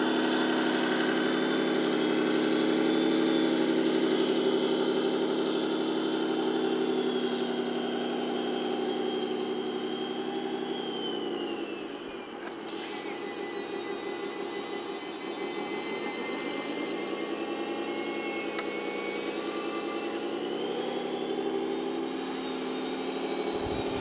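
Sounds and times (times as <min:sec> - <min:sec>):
electronic truck engine idling: 0:00.0 - 0:10.9, 0:23.4 - 0:24.0
thin high whine: 0:00.0 - 0:24.0
click: 0:18.5 - 0:18.8.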